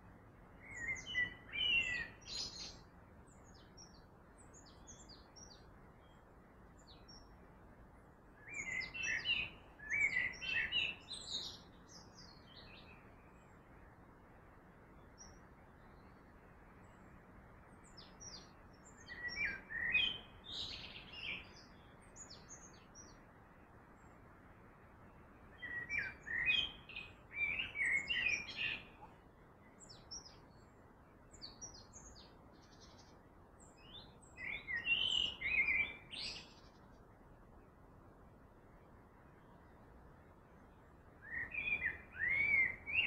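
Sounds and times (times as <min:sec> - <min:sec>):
steady low hiss: 0:00.0 - 0:43.0
birds singing and chirping: 0:00.6 - 0:06.2, 0:08.4 - 0:13.0, 0:17.8 - 0:23.2, 0:25.6 - 0:29.2, 0:29.8 - 0:30.7, 0:31.3 - 0:36.8, 0:41.2 - 0:43.0.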